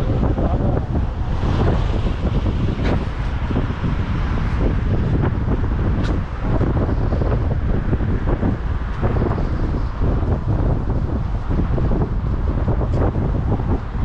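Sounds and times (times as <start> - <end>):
city street noise: 0.0 - 14.0
wind buffeting microphone: 0.0 - 14.0.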